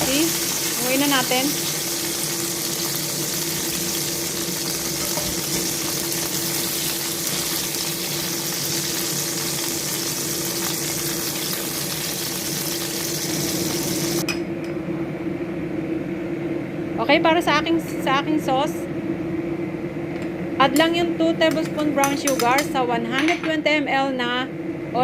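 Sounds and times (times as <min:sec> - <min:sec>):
chicken sizzling in hot oil: 0:00.0 - 0:14.2
steady hum: 0:00.0 - 0:25.0.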